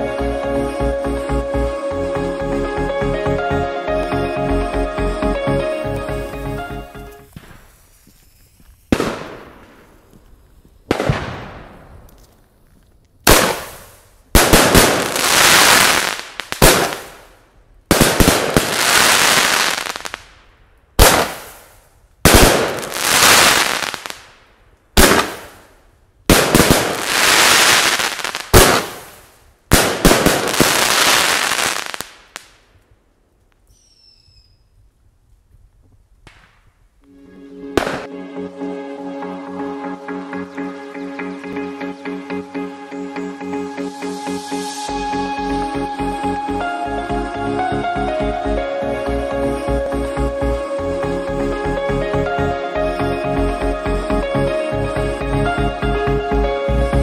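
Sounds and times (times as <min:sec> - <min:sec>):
fireworks crackling: 0:06.2 - 0:32.8
fireworks launch thumps: 0:07.3 - 0:10.3, 0:10.9 - 0:12.4.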